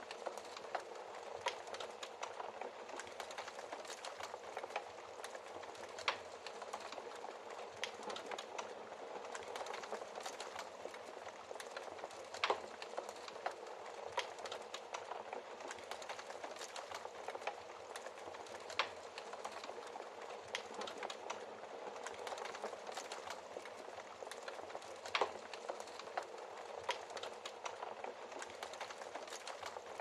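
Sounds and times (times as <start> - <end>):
fire popping: 0.0 - 30.0
wood fire crackling: 0.0 - 30.0.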